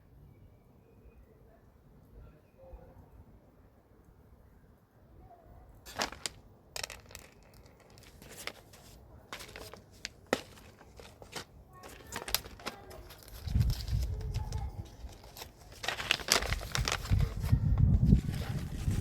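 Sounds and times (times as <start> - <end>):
crinkling and rustling: 5.8 - 19.0.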